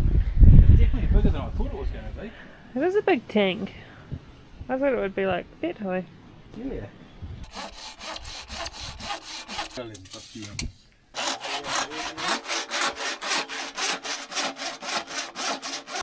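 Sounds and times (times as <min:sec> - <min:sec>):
hand saw sawing: 0:07.4 - 0:16.0.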